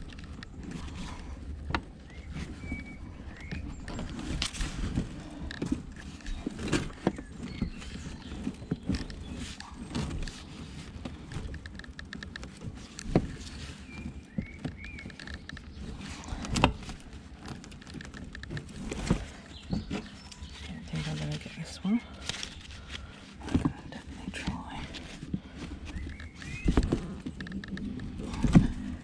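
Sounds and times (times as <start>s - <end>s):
rubble and scrap clattering: 0.0s - 29.0s.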